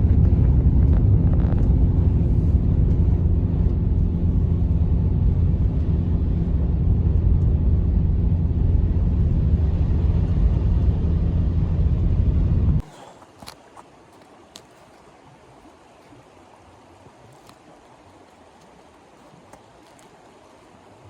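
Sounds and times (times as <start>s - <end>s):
loud low rumble with hum: 0.0s - 12.8s.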